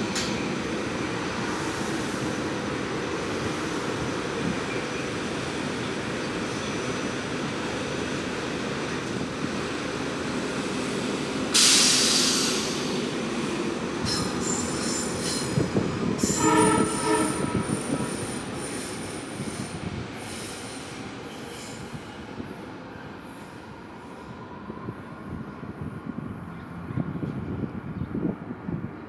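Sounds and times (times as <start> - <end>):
train rumble: 0.0 - 6.6, 7.5 - 21.2
train brake hiss: 1.5 - 2.6, 11.5 - 13.2, 14.1 - 22.4
train wheel squeal: 11.6 - 13.0, 14.0 - 27.5
train horn chord: 16.2 - 18.2.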